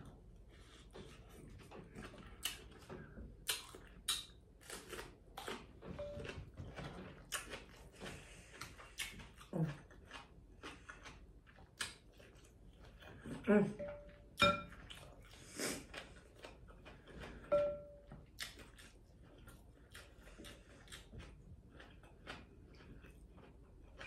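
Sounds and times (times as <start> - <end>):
chewing and biting: 0.0 - 24.0
sharp crunches and mouth clicks: 1.5 - 13.2, 18.3 - 24.0.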